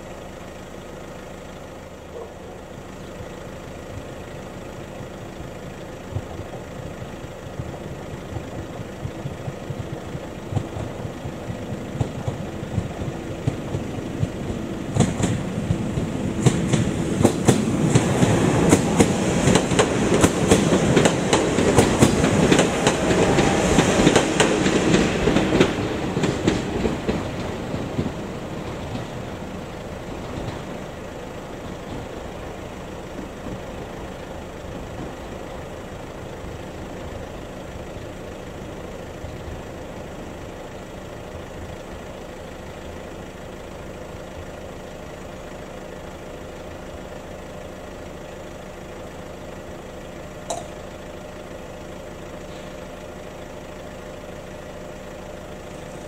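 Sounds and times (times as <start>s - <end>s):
train passing over crossing: 0.0s - 56.0s.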